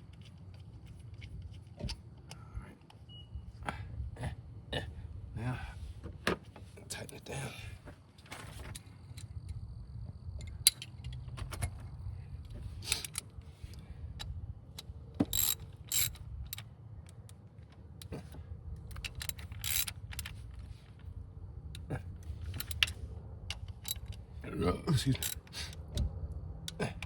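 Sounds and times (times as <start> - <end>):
ratchet wrench clicking: 12.9 - 17.4, 18.9 - 20.8, 21.7 - 24.4, 25.1 - 26.0.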